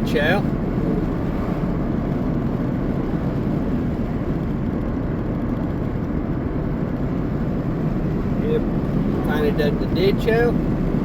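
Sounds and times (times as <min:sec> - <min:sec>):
car engine: 0:00.0 - 0:11.0
tyre road noise: 0:00.0 - 0:11.0.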